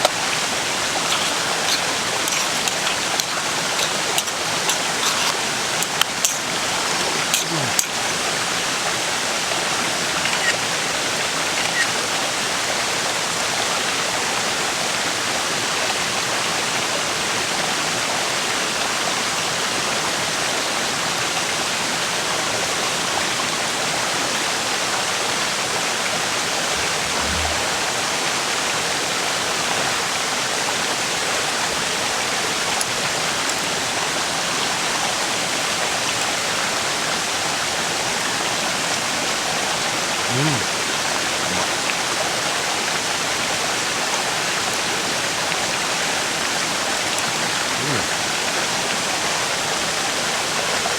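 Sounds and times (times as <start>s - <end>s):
river rushing over stones: 0.0s - 14.1s.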